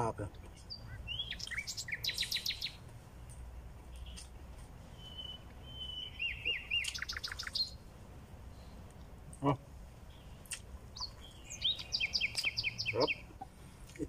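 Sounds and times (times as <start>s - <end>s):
songbirds chirping: 0.0s - 14.0s
fast bird trill: 0.7s - 2.8s, 5.0s - 7.8s, 10.2s - 13.3s.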